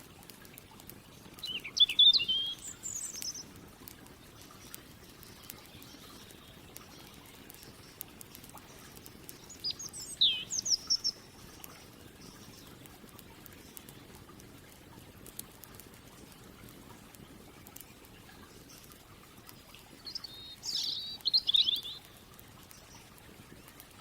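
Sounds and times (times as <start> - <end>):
campfire crackling: 0.0 - 24.0
songbird chirping: 1.2 - 3.5, 5.0 - 12.8, 19.6 - 23.0.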